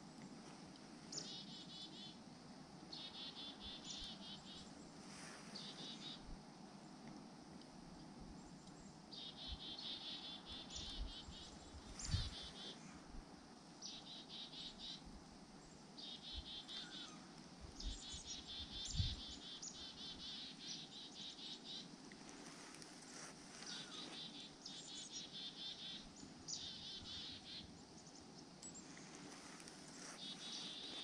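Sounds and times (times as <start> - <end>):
small birds trilling: 23.1 - 31.0.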